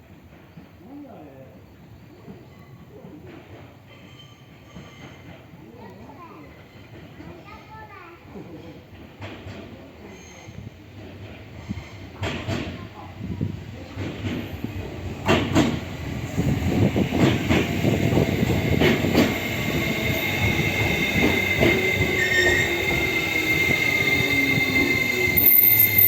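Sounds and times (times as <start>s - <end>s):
train wheels clicking over rail joints: 14.0s - 26.0s
high wheel squeal: 19.5s - 26.0s.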